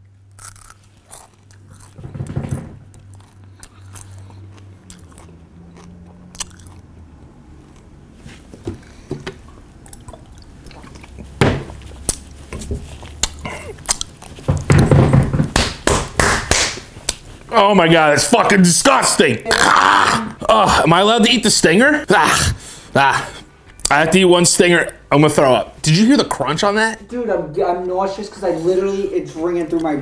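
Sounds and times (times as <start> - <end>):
crunching and chewing: 0.2 - 2.0, 2.9 - 8.0, 9.7 - 14.7.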